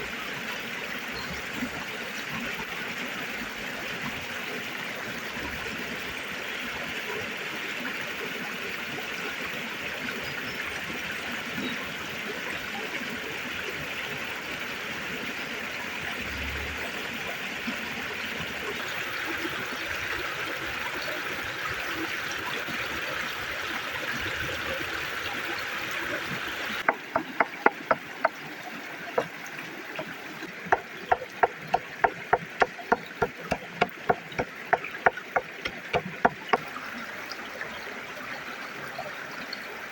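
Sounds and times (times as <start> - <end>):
flowing river: 0.0 - 39.9
sharp knocks: 30.7 - 36.6.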